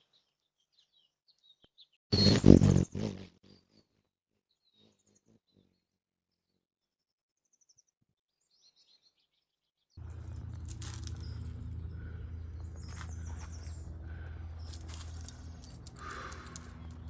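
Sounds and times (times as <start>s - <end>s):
birds chirping: 10.0s - 17.0s
loud low rumble with hiss: 10.0s - 17.0s.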